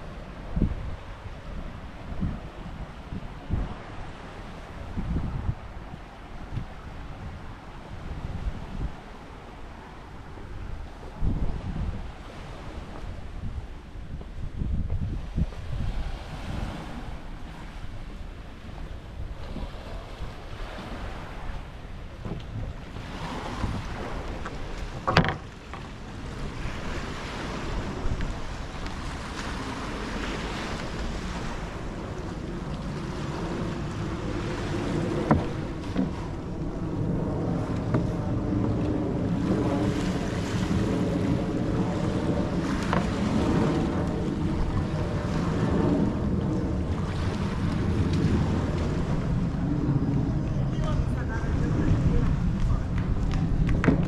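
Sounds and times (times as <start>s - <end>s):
waves washing on sandy beach: 0.0s - 54.0s
wind buffeting microphone: 0.0s - 54.0s
sharp knocks: 25.0s - 25.8s
low steady hum: 27.7s - 54.0s.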